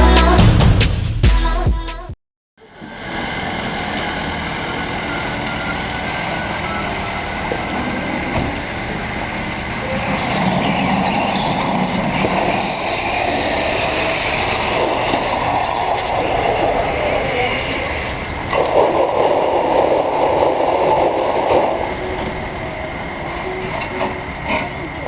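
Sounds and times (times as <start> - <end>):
off-road vehicle engine under load: 3.0 - 18.6.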